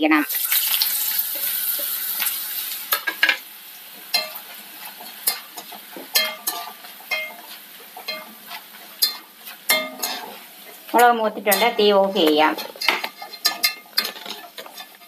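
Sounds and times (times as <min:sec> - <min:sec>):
chillies sizzling in hot oil: 0:00.0 - 0:15.0
metal ladle clinking against pan: 0:06.1 - 0:07.4, 0:08.0 - 0:08.3, 0:09.0 - 0:10.3, 0:11.0 - 0:15.0.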